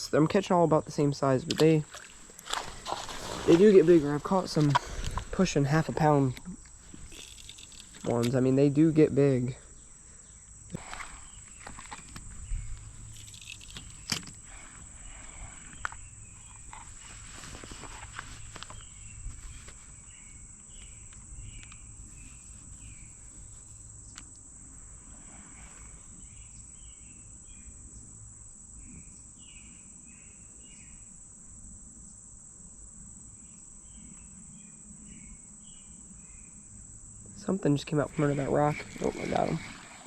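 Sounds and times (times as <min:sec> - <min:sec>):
high-pitched insect trilling: 0:01.1 - 0:16.9.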